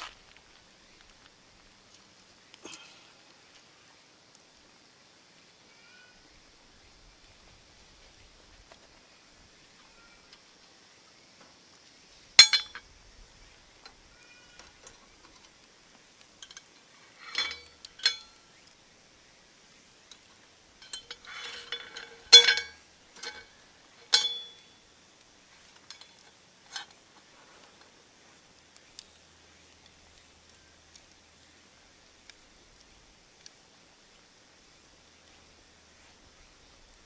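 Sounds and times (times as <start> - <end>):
cookware clinking: 12.4 - 12.8, 17.2 - 18.3, 20.8 - 23.5, 24.1 - 24.7
soft rustle: 25.4 - 31.6.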